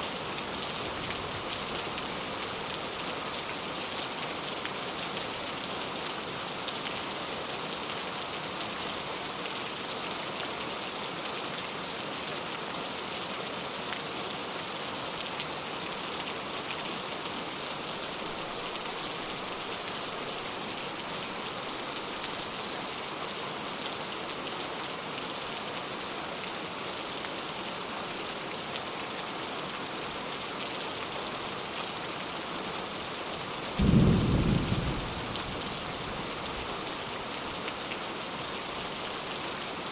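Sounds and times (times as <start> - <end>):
steady rain hiss: 0.0 - 39.9
loud low thunder clap: 33.8 - 36.0.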